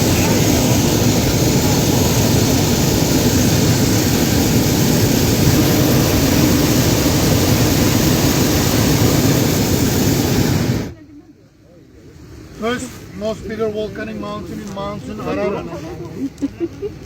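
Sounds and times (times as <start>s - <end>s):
loud steady roar: 0.0s - 11.0s.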